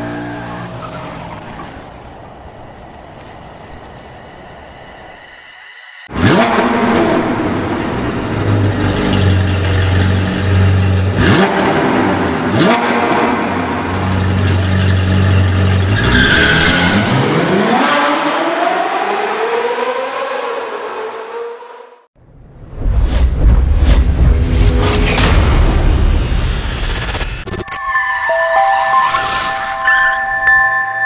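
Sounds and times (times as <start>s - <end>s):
sports car engine revving: 6.1s - 16.2s.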